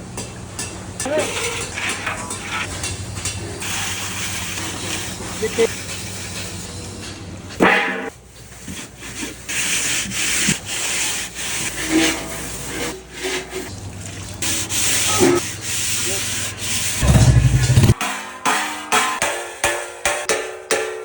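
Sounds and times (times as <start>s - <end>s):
low machine hum: 17.0s - 18.0s.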